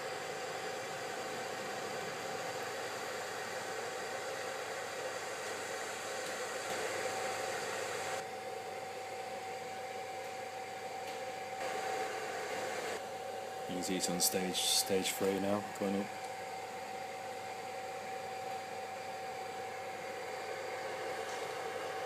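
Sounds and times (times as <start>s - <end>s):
faint steady whine: 0.0s - 22.0s
hot air heater blowing: 0.0s - 22.0s.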